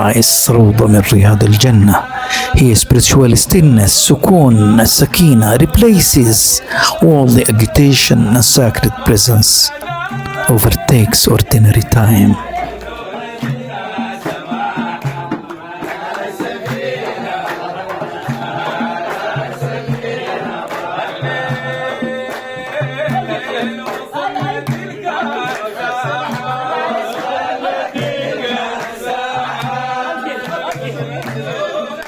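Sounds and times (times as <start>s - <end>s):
voices chanting: 0.0s - 14.9s.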